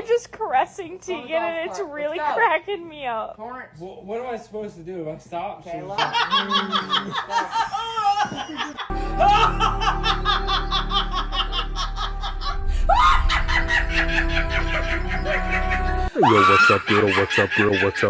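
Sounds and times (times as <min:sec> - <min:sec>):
person laughing: 0:06.0 - 0:18.0.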